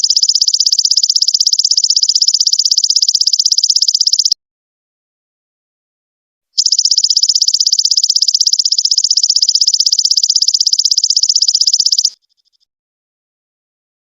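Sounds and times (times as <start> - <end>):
insect high-pitched pulsing trill: 0.0 - 4.4, 6.6 - 12.6.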